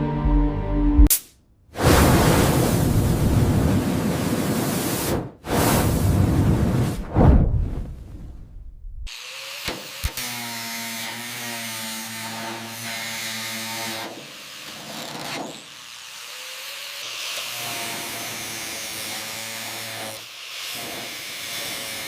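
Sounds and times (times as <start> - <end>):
power tool motor running: 9.1 - 22.0.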